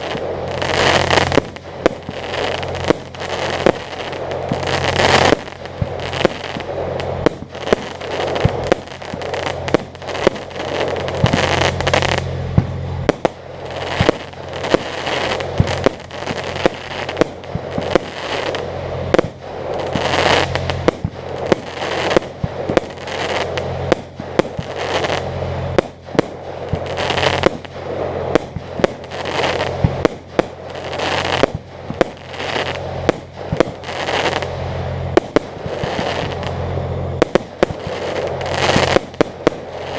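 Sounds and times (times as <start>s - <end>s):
fireworks bangs and crackling: 0.0s - 39.9s
steady low hum: 0.0s - 39.9s.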